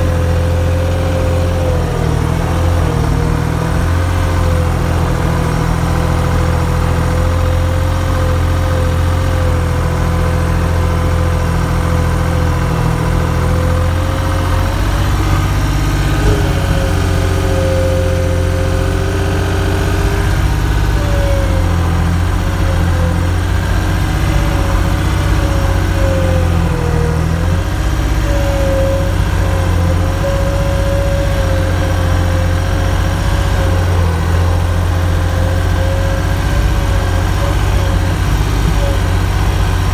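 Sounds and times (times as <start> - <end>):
engine running with deep rumble: 0.0 - 39.9
wavering whine: 13.6 - 37.0.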